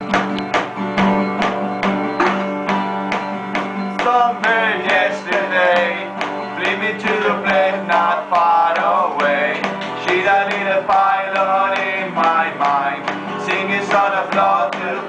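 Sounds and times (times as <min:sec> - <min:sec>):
acoustic guitar strumming: 0:00.0 - 0:15.0
person singing: 0:04.0 - 0:15.0.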